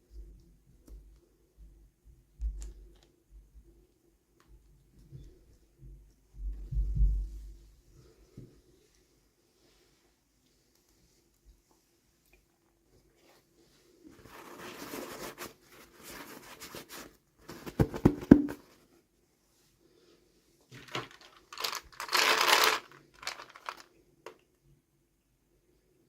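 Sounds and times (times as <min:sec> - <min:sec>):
packaging tearing and crinkling: 0:20.8 - 0:23.9.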